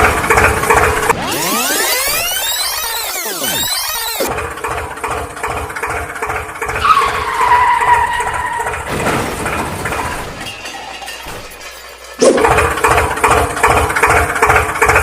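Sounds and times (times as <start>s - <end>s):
vehicle engine running: 0.0s - 10.4s, 11.8s - 15.0s
high squeal-like tone: 1.2s - 4.3s, 6.8s - 8.9s.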